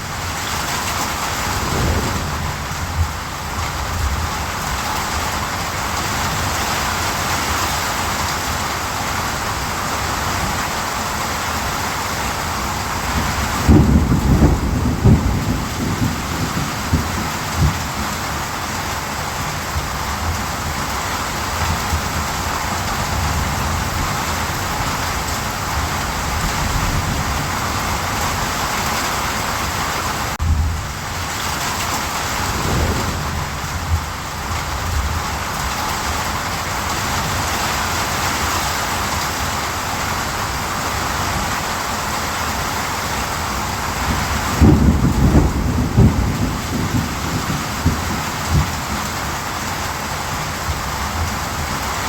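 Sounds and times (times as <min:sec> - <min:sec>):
heavy rain: 0:00.0 - 0:52.0
thunder rumbling: 0:00.6 - 0:04.7, 0:32.2 - 0:35.4.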